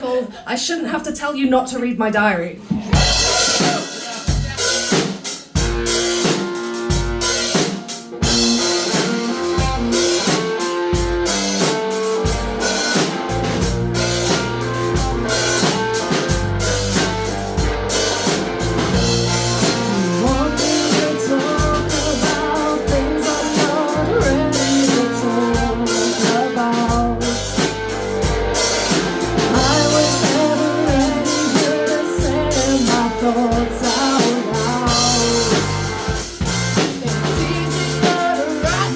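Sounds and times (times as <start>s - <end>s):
drum kit beat: 2.6s - 38.9s
electric guitar: 3.0s - 38.9s
heavy bass line: 12.2s - 38.9s.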